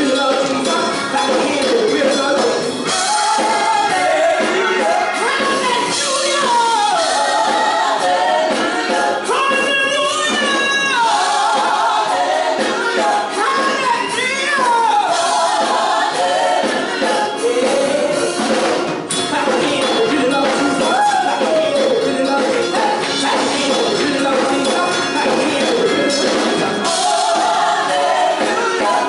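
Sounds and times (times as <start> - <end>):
gospel music: 0.0 - 29.0
voices singing together: 0.0 - 29.0.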